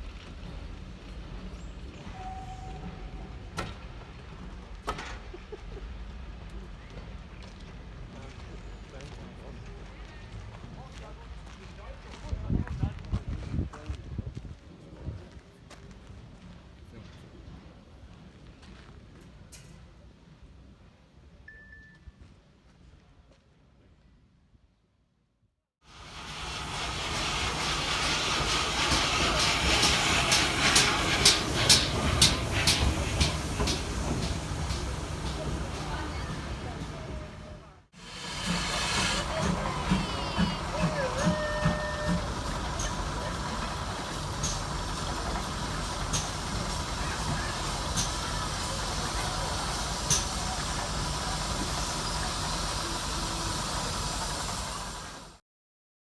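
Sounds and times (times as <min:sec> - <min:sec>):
steam train hissing and rumbling: 0:00.0 - 0:14.7, 0:25.8 - 0:55.4.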